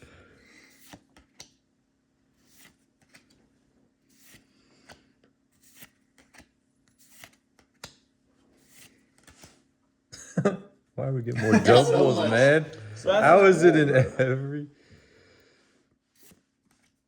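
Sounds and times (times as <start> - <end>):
cards flicking and rustling: 2.4 - 3.5, 4.1 - 9.7.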